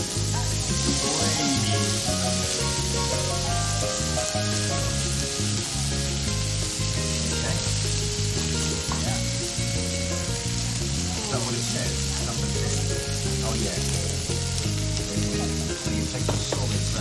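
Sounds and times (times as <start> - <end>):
background music with bass: 0.0 - 17.0
food sizzling: 0.0 - 17.0.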